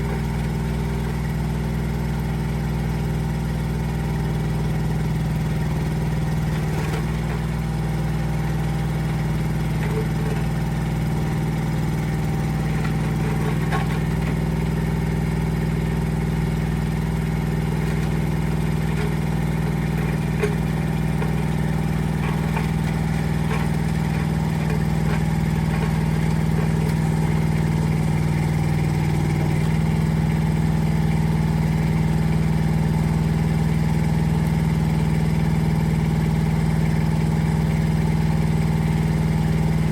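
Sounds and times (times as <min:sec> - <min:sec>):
mini excavator engine running: 0:00.0 - 0:39.9.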